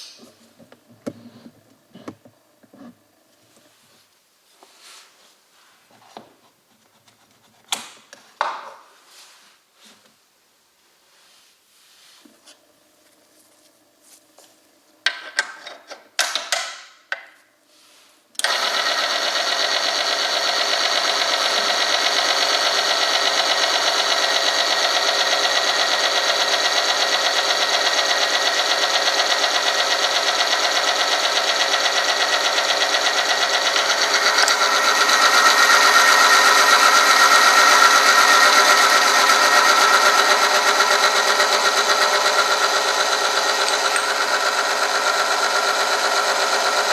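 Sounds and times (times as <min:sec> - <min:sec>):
motor whine of metal rubbing: 0:18.5 - 0:46.9.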